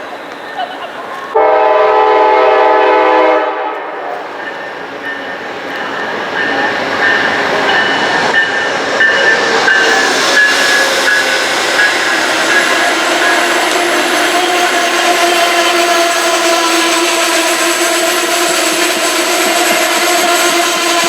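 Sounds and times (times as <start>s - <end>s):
train passing: 0.0s - 21.0s
steady high tones: 4.1s - 14.8s.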